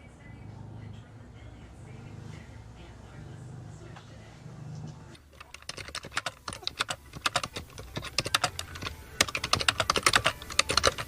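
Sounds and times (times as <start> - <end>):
rapid clicking and tapping: 5.2 - 11.0.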